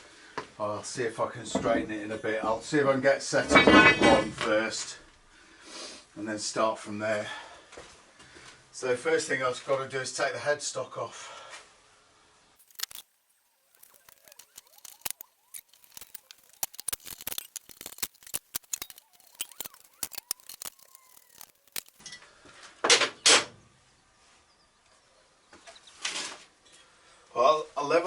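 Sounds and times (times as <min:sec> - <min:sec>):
hand tools clicking and tapping: 0:13.6 - 0:22.0.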